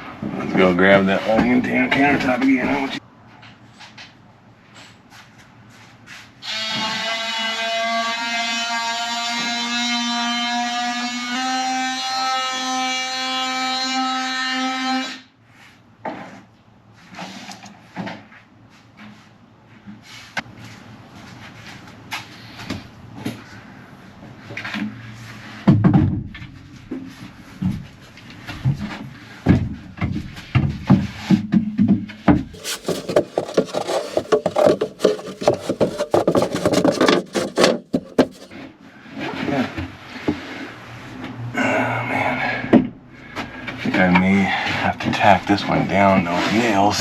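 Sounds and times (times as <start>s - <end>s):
wooden pieces knocking and scraping: 32.6s - 38.5s.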